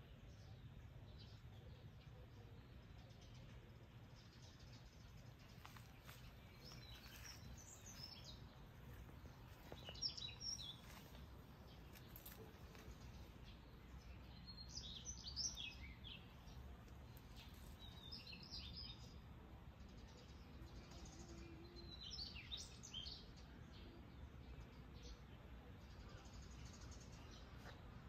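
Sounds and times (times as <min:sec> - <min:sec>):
faint low rumble: 0:00.0 - 0:18.3
songbirds chirping: 0:00.0 - 0:28.0.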